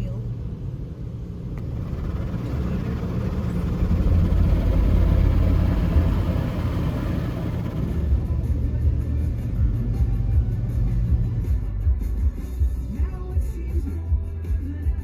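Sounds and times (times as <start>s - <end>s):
car wash rumble and hiss: 0.0s - 11.9s.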